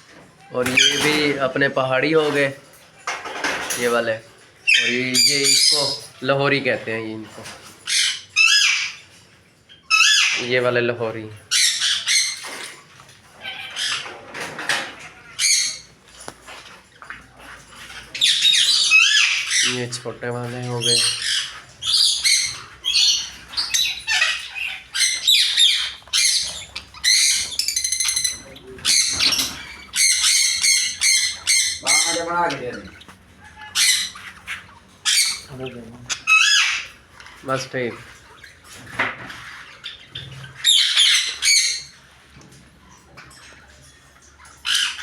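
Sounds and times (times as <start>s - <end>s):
small birds chirping and squawking: 0.0s - 45.0s
soft parrot chirps: 20.9s - 35.5s.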